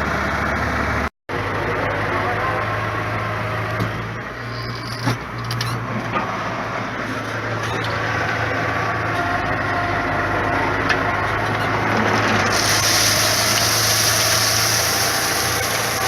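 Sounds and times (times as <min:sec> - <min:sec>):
heavy machinery engine running: 0:00.0 - 0:16.0
hiss: 0:12.5 - 0:16.0.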